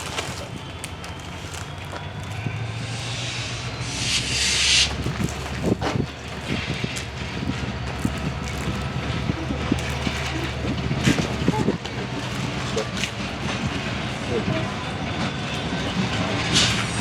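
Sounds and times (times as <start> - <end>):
locomotive engine drone: 0.0 - 17.0
air hiss: 2.5 - 5.8.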